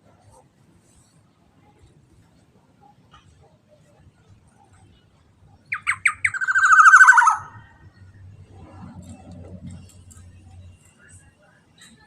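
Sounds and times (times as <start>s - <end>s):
oriole calling: 5.7s - 7.8s.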